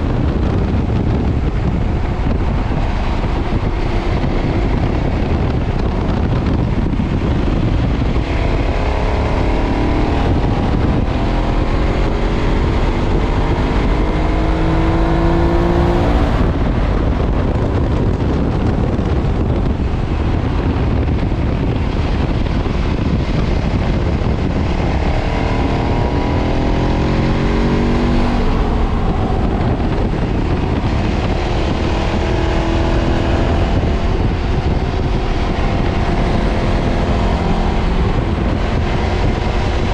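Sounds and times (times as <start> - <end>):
motorcycle engine at speed: 0.0 - 39.9
wind noise: 0.0 - 39.9.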